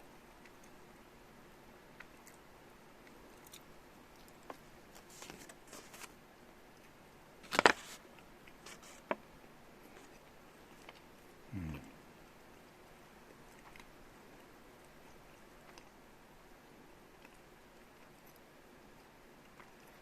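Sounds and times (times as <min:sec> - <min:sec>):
faint clicks and rustles: 0:01.9 - 0:11.4.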